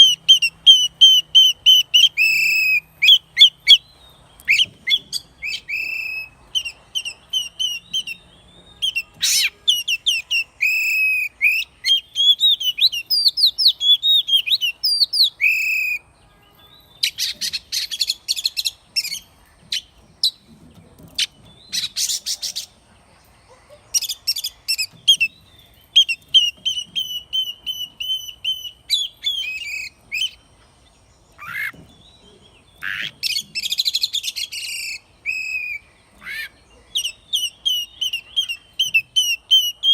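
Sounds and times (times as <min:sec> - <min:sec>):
bird singing whistled phrases: 0:00.0 - 0:16.1, 0:24.0 - 0:30.4, 0:32.8 - 0:39.9
harsh rasping bird notes: 0:04.4 - 0:12.1.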